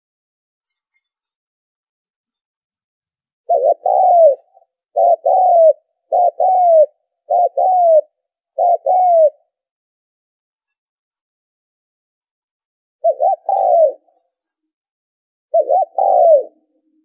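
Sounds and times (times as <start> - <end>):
dove cooing: 3.4 - 9.6, 13.0 - 14.2, 15.5 - 17.0.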